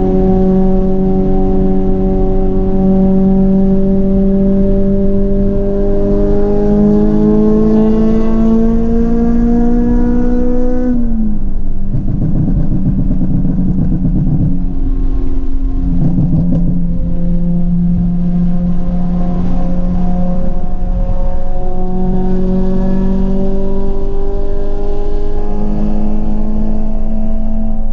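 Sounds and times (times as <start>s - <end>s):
car engine revving: 0.0s - 27.9s
exhaust crackling pops: 11.8s - 15.0s, 15.9s - 17.1s.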